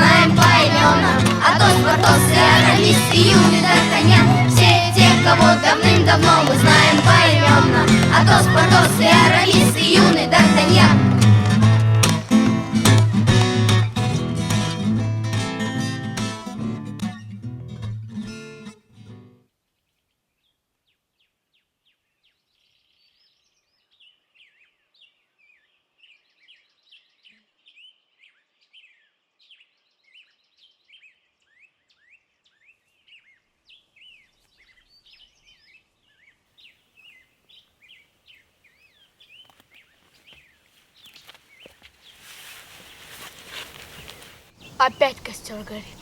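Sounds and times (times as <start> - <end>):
small birds chirping: 21.2 - 46.0
rustling with clicks: 41.0 - 44.5.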